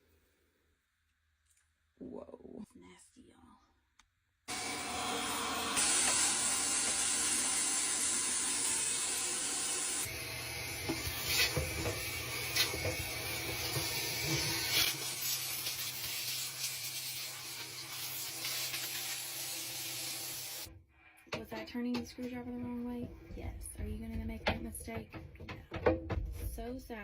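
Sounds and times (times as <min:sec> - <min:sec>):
vacuum cleaner running: 0:04.5 - 0:20.7
hose scraping and knocking: 0:10.8 - 0:16.4.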